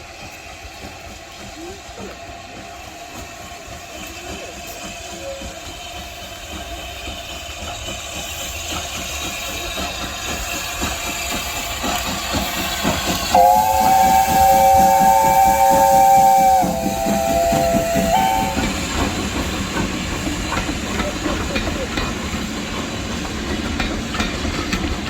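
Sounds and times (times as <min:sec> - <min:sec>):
steam locomotive exhaust beats: 0:00.0 - 0:25.0
locomotive chord whistle: 0:13.3 - 0:18.7.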